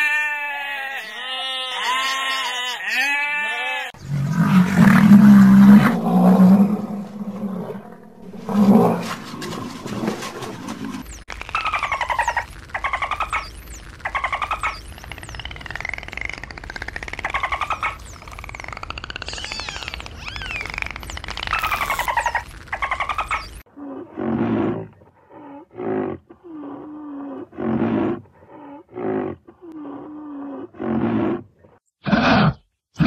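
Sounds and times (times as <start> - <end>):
sheep bleating: 0.0 - 4.0.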